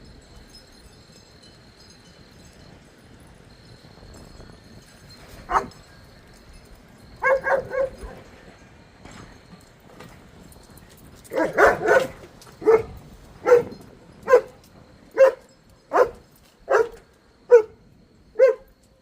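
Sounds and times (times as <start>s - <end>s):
dog barking: 5.5s - 5.7s, 7.2s - 8.2s, 11.3s - 14.6s, 15.2s - 17.8s, 18.4s - 18.7s.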